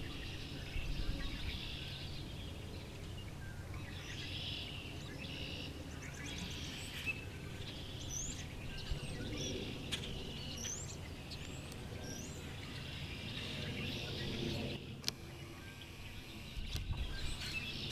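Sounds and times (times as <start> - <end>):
songbirds chirping: 0.0 - 17.9
sharp clicks: 15.0 - 17.9.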